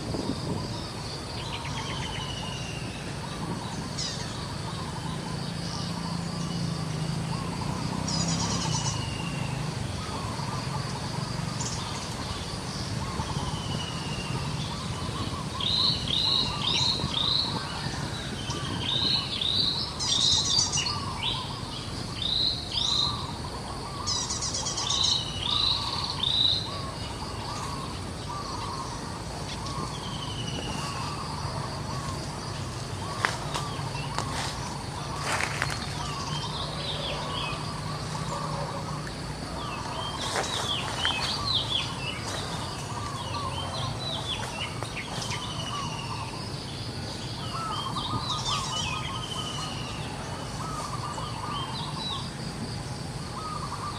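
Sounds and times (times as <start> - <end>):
birds chirping: 0.0 - 53.9
faint bird chatter: 22.5 - 52.3.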